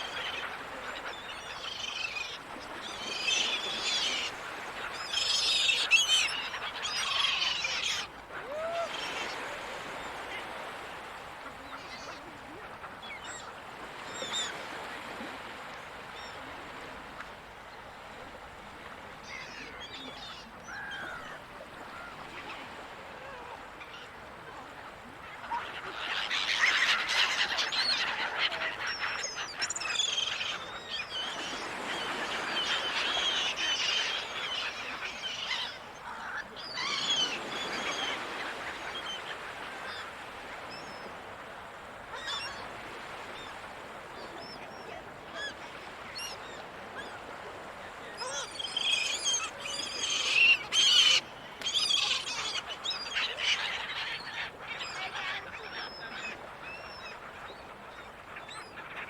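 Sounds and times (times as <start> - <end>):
gulls calling: 0.0 - 12.2, 25.3 - 41.2, 42.1 - 59.0
surf washing: 0.0 - 59.0.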